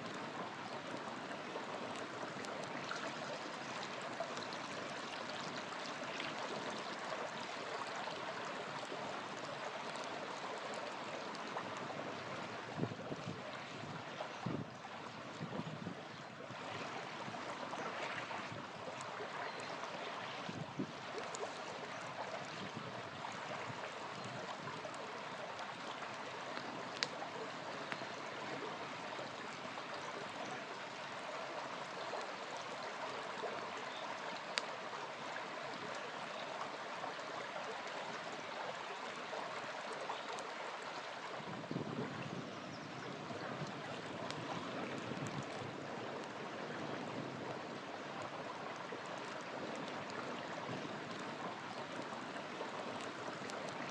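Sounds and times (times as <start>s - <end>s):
river flowing: 0.0s - 53.9s
campfire crackling and popping: 18.4s - 28.4s, 43.6s - 53.9s.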